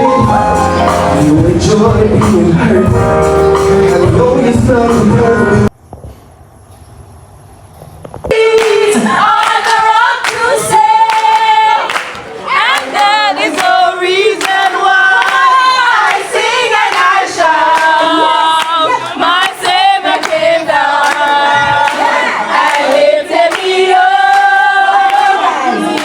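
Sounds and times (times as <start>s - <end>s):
person singing with vibrato: 8.3s - 26.0s.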